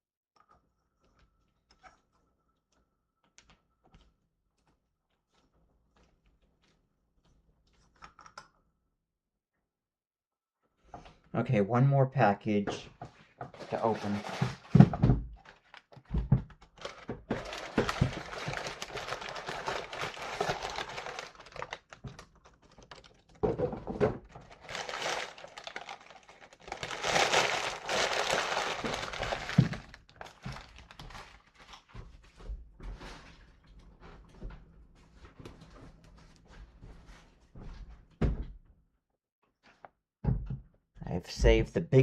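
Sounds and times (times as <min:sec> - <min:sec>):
packaging rustling and tearing: 0:13.6 - 0:23.4, 0:24.3 - 0:31.9
box knocking and thunking: 0:13.7 - 0:15.4.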